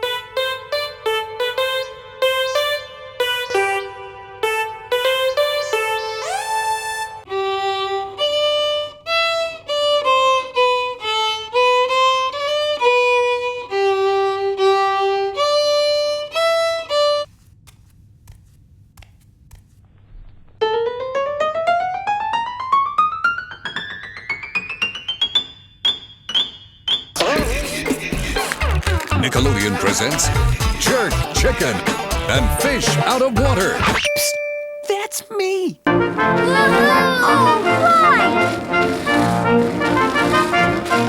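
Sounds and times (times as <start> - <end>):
violin melody: 0.0 - 17.3, 35.9 - 41.0.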